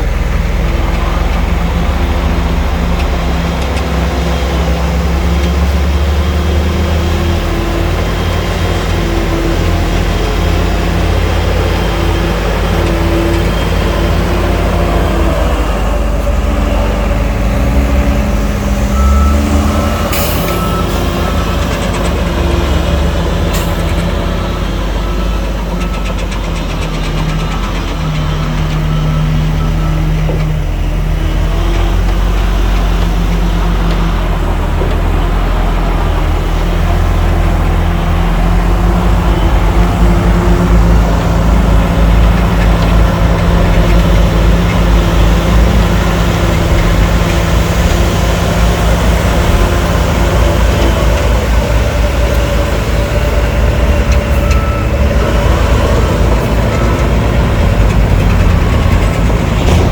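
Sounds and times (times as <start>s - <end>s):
heavy diesel engines running: 0.0s - 59.9s
truck reversing beeper: 0.0s - 59.9s.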